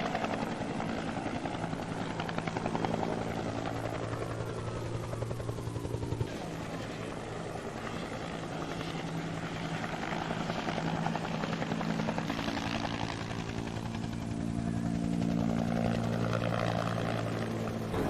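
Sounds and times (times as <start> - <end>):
engine drone with rapid chop: 17.8 - 18.0.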